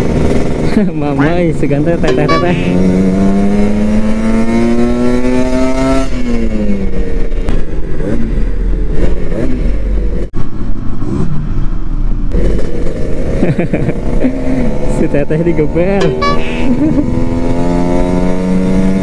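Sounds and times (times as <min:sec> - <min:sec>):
motorcycle engine revving: 0:00.0 - 0:10.3, 0:12.3 - 0:19.0.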